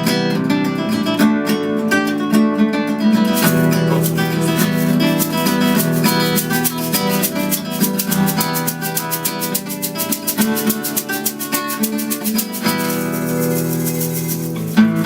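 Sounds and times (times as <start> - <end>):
guitar chords: 0.0 - 15.0
high percussive ticks: 3.4 - 14.9.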